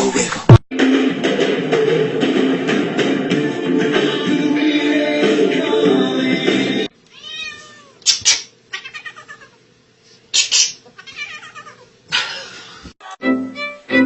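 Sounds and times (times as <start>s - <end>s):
cat meowing: 7.1s - 8.0s, 8.7s - 9.6s, 11.0s - 11.9s.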